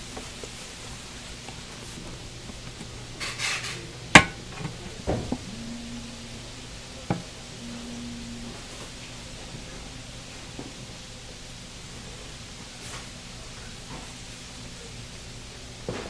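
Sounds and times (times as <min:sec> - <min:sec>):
low steady hum: 0:00.8 - 0:16.0.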